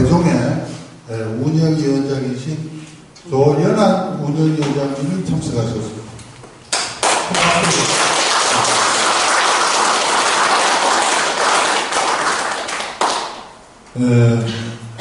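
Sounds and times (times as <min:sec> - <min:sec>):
audience applauding: 0:06.7 - 0:13.6.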